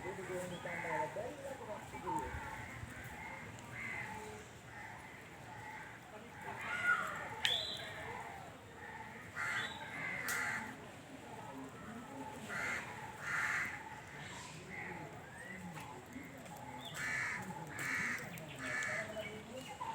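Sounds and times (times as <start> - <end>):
crows cawing: 2.3 - 6.0, 8.8 - 10.8, 12.5 - 14.1, 17.0 - 19.2.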